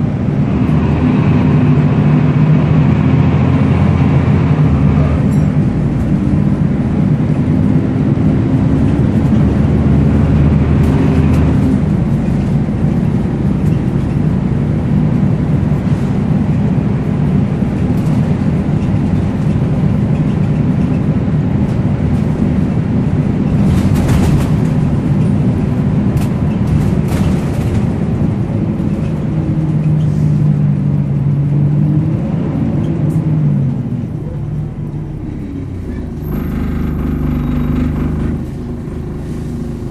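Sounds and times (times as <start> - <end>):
bus diesel engine running: 0.0 - 39.9
rattles and knocks: 23.5 - 28.1, 36.0 - 38.7.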